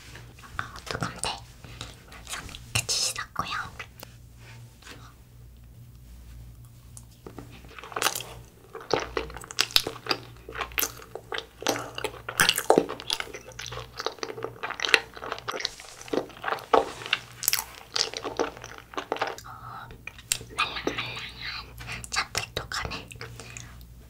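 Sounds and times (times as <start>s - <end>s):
chewing with mouth clicks: 6.5s - 23.9s.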